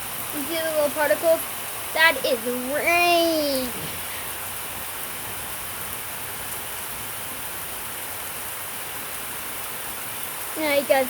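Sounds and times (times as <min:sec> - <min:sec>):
raindrop ticks: 0:00.0 - 0:04.5
heavy rain hissing: 0:00.0 - 0:11.0.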